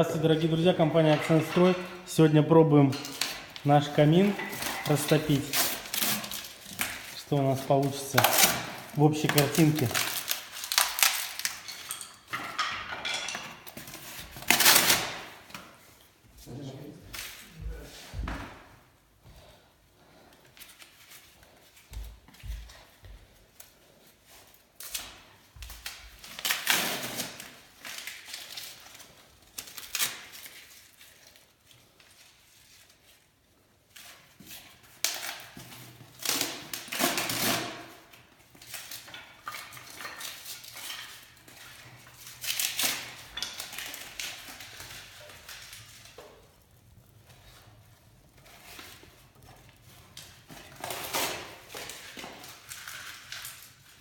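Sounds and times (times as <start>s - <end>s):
clinks and knocks at fireplace: 0.8s - 2.2s, 2.8s - 5.3s, 11.4s - 14.0s, 43.1s - 44.2s.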